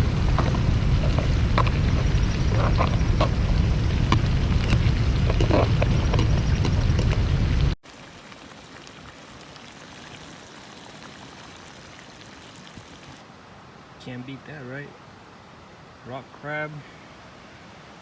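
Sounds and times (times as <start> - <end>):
faint hiss: 7.8 - 17.7.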